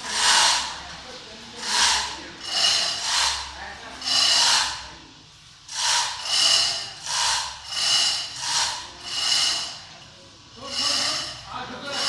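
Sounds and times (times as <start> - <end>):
rasping scraping strokes: 5.7 - 9.9, 10.6 - 12.0.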